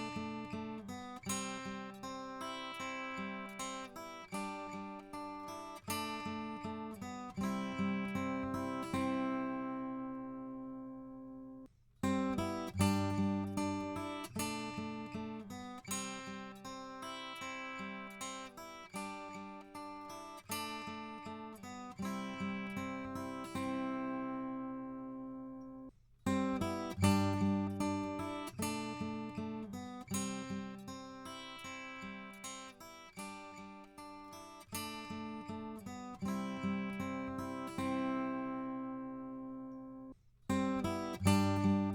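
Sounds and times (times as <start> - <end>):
acoustic guitar chord: 35.9 - 41.9.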